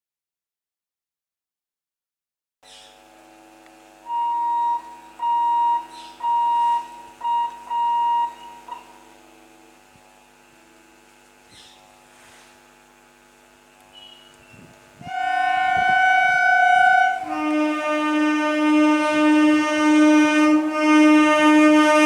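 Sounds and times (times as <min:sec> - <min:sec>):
electrical hum: 0:02.6 - 0:22.0
train horn blasts: 0:03.1 - 0:09.8, 0:15.0 - 0:22.0.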